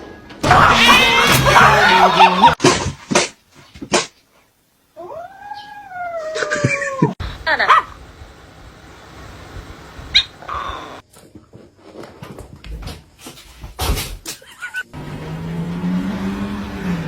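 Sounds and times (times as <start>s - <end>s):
animal crying: 0.4s - 2.5s, 5.0s - 7.2s.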